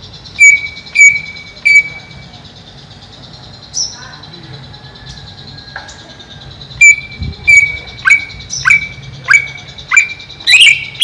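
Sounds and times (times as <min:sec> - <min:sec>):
bird whistled calls: 0:00.0 - 0:02.4, 0:05.0 - 0:11.0.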